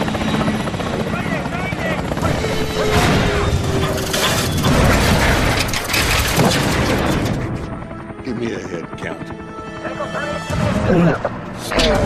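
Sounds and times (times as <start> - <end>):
metal clanking: 2.7 - 7.5.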